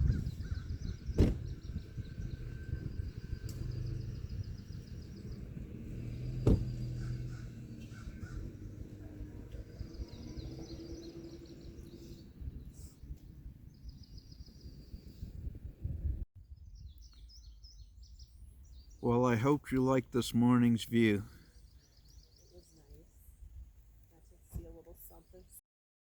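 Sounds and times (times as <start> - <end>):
low steady rumble: 0.0 - 16.2
sharp knock: 6.5 - 6.7.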